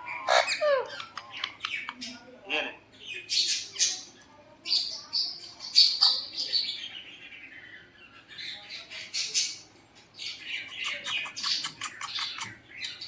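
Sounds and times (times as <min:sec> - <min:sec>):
parrot squawking: 0:00.0 - 0:01.2.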